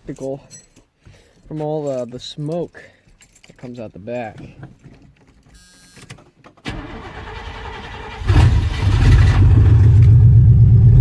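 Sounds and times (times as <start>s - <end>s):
starter motor cranking: 6.7s - 10.2s.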